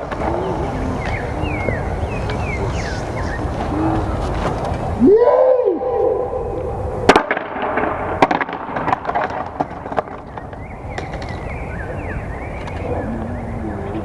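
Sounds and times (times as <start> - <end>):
skateboard deck clacks: 0.0 - 0.4, 7.2 - 11.4
skateboard wheels rolling: 0.0 - 5.3, 7.1 - 11.5.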